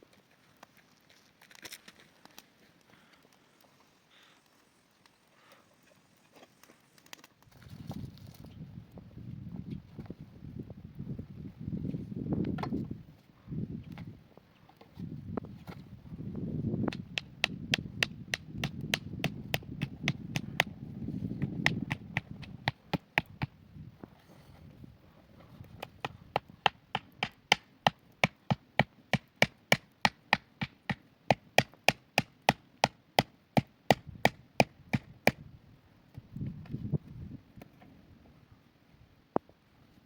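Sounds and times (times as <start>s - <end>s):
hand tool striking wood: 16.9s - 20.7s, 21.4s - 23.5s, 25.8s - 35.1s.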